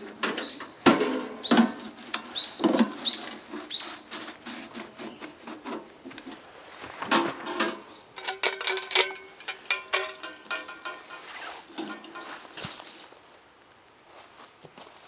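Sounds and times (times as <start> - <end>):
squeaky spatula scrapes: 1.4 - 5.5
metal spatula clanking on iron pan: 8.2 - 11.2.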